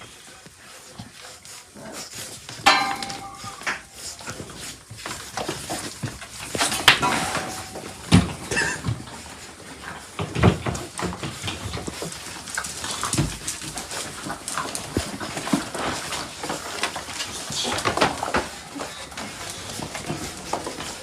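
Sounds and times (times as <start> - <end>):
dog noises: 0.0 - 21.0
heavy thumps: 2.7 - 4.0.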